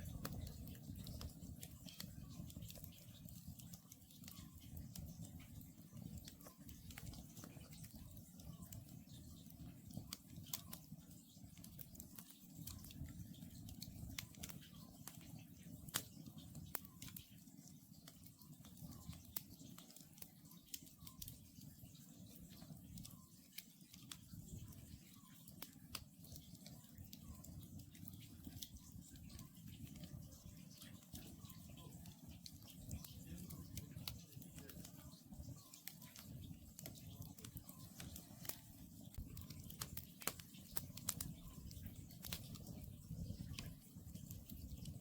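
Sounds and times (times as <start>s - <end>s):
campfire crackling: 0.0s - 45.0s.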